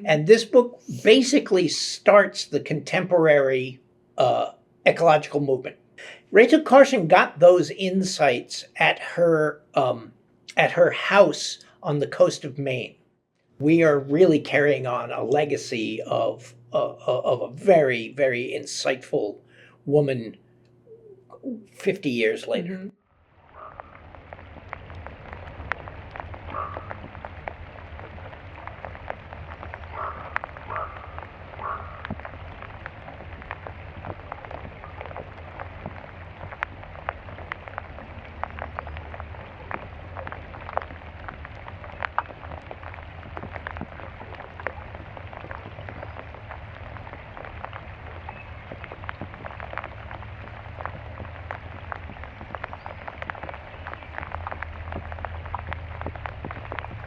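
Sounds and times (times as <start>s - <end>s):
steady low hum: 0.0s - 57.0s
crackle of clicks and pops: 9.8s - 19.8s, 20.4s - 21.1s, 23.0s - 57.0s.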